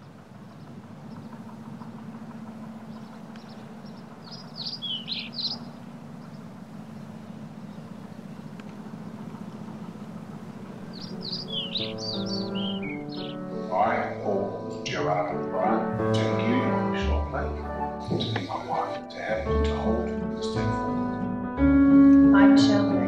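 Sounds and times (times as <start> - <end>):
songbirds chirping and singing: 0.0 - 23.0
steady low hum: 0.0 - 23.0
music: 11.2 - 23.0.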